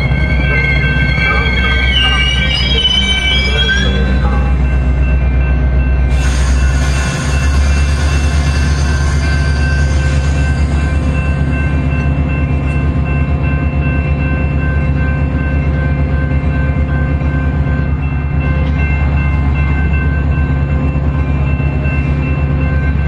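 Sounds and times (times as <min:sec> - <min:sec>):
whining tones: 0:00.0 - 0:05.1
diesel locomotive hum: 0:00.0 - 0:23.0.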